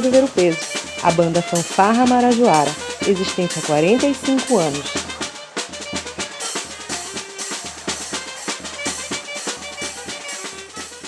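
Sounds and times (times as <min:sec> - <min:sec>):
bass drum and snare beat: 0:00.0 - 0:11.0
held melody notes: 0:00.0 - 0:11.0.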